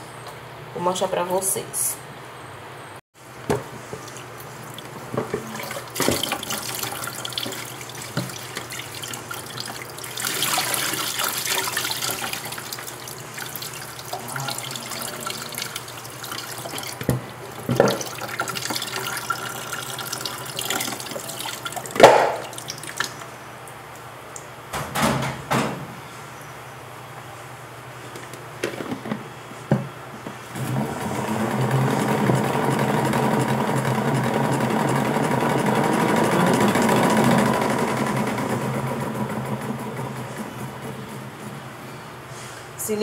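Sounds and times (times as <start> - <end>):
tap running into sink: 5.1 - 8.8, 16.4 - 23.1.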